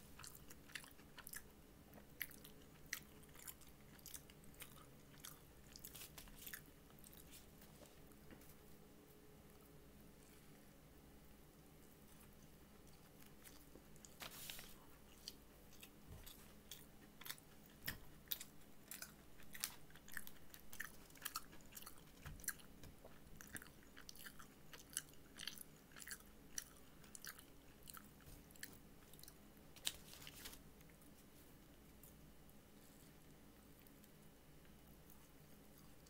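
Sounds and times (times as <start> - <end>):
person chewing crunchy food: 0.0 - 8.2, 12.2 - 30.5.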